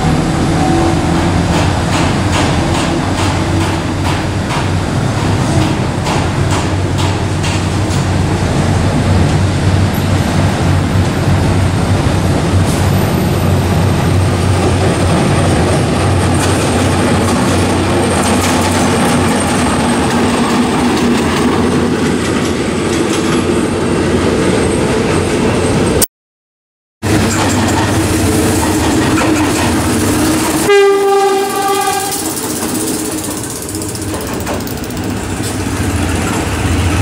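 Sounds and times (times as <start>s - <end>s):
diesel locomotive engine hum: 0.0s - 26.0s, 27.0s - 37.0s
rail and wheel noise: 0.0s - 26.1s, 27.0s - 37.0s.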